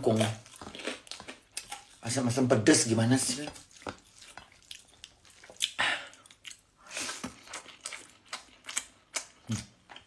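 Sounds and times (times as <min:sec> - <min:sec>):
person chewing rice: 0:00.0 - 0:10.0
wet mouth sounds: 0:03.3 - 0:10.0.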